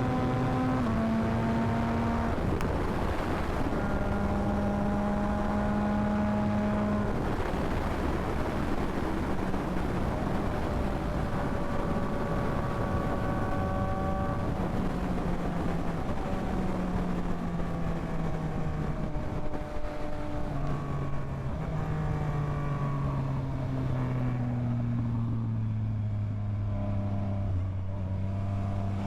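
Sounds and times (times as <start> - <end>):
wind rushing on microphone: 0.0 - 25.2
motorcycle engine cruising: 0.0 - 29.0.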